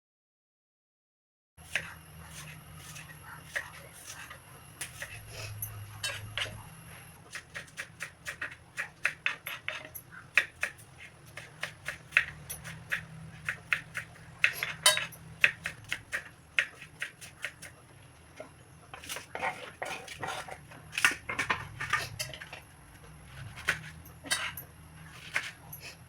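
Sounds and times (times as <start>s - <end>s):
utensils clinking on cookware: 4.8s - 6.6s, 14.4s - 15.3s, 18.9s - 22.6s, 23.7s - 24.7s.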